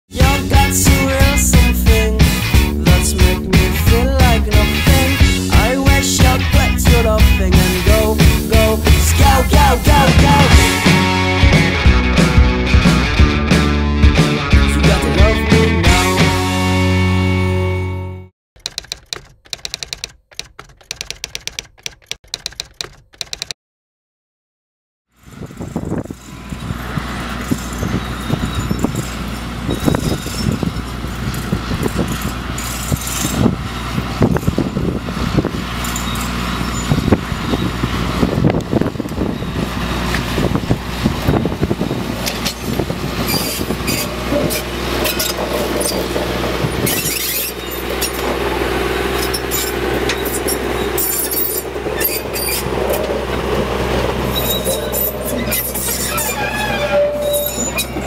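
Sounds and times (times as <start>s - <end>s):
freight train rumbling: 0.1s - 13.2s, 25.2s - 58.0s.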